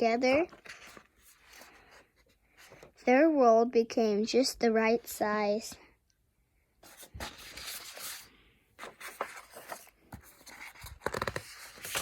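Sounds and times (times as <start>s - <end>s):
book pages rustling: 0.0s - 3.0s, 6.8s - 12.0s.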